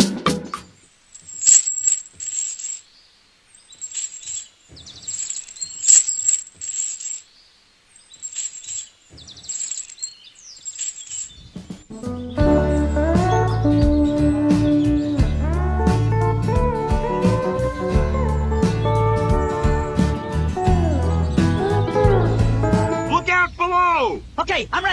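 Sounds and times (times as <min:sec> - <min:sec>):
small birds chirping: 0:00.5 - 0:16.0.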